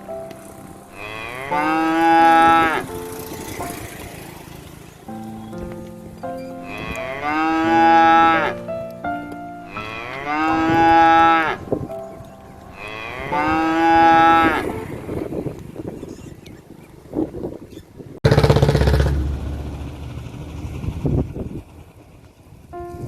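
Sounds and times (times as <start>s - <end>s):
cow mooing: 1.0s - 2.9s, 6.6s - 8.6s, 9.7s - 11.6s, 12.8s - 15.0s.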